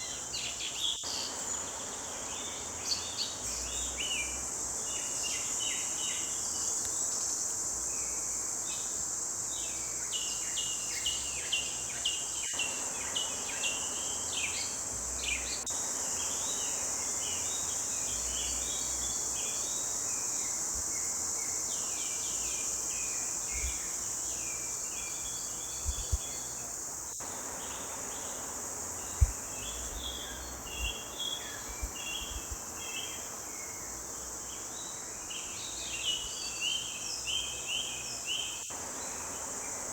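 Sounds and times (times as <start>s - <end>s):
forest birds chirping: 0.0s - 39.9s.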